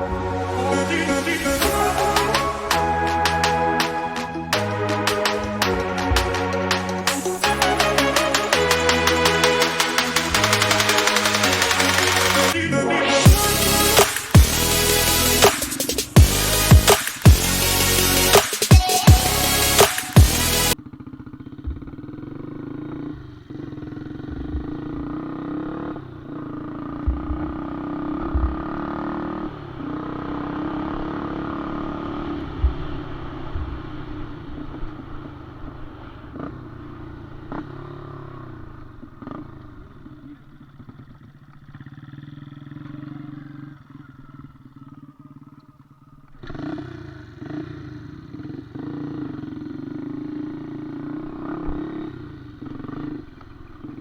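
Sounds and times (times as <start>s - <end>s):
small motorcycle engine running: 7.4s - 12.6s, 20.6s - 54.0s.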